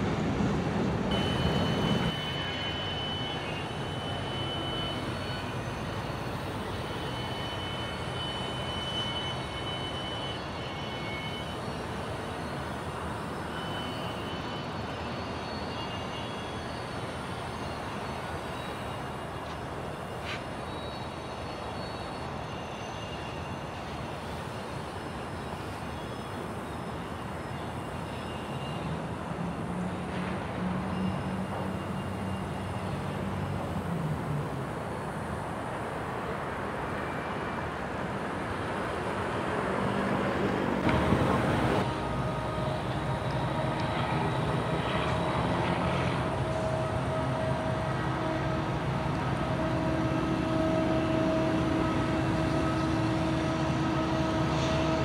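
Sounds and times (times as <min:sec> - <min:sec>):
freight train rumbling past: 0:00.0 - 0:55.0
thin high squeal: 0:01.1 - 0:29.0, 0:30.9 - 0:33.5.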